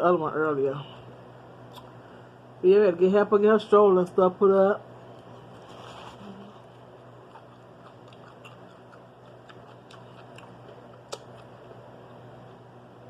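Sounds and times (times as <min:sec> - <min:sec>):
low steady hum: 0:00.0 - 0:13.0
chewing crunches: 0:05.2 - 0:12.7
wet mouth clicks: 0:07.3 - 0:11.5.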